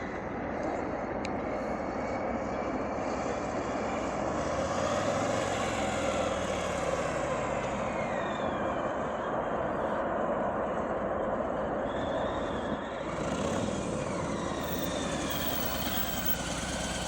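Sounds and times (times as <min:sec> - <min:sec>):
faint sliding whines: 0:00.0 - 0:17.0
motorcycle engine: 0:12.3 - 0:17.0.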